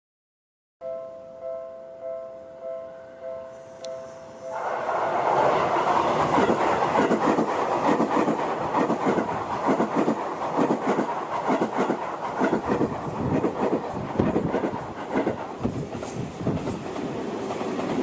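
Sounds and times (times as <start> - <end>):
train wheels clacking over rail joints: 4.8 - 18.0.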